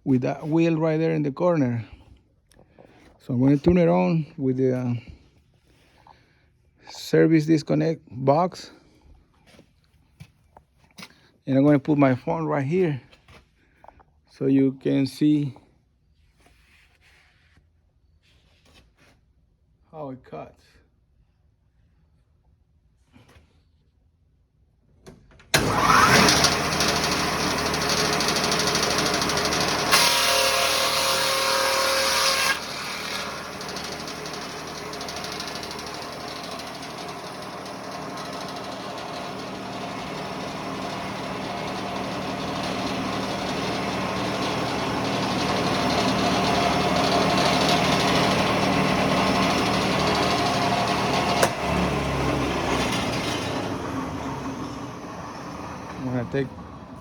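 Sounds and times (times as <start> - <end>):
sawmill edger running: 25.5 - 57.0
board cut through saw blades: 25.6 - 56.7.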